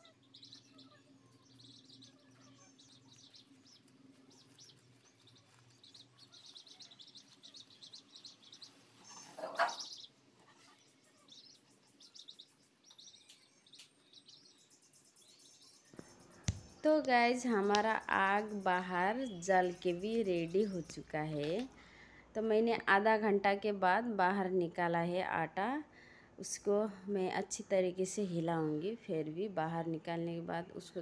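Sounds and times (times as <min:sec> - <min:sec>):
small birds chirping: 0:00.0 - 0:23.3
faint low hum: 0:00.0 - 0:31.0.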